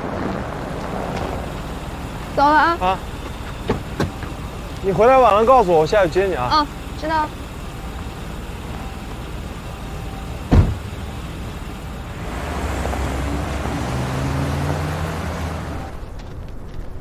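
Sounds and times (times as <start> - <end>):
car engine pulling away: 0.0 - 17.0
heavy thud: 10.5 - 11.0.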